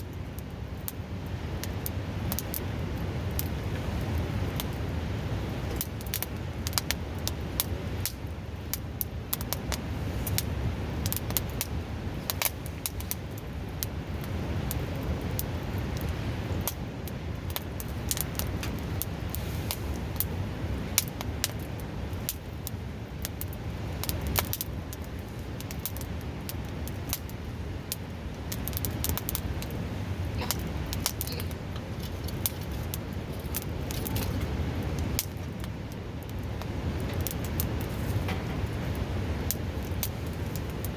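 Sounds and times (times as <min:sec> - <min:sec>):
wood fire crackling and popping: 0:00.0 - 0:40.9
river rushing: 0:27.5 - 0:35.3.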